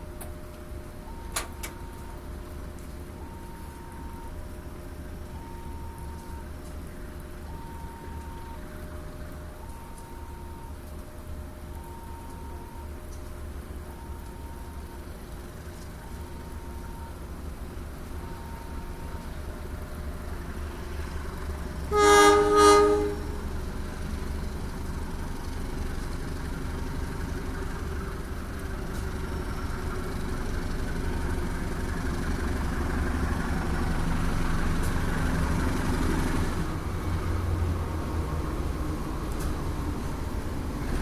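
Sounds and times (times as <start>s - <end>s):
train rumbling: 0.0s - 41.0s
train horn short blasts: 21.9s - 23.5s.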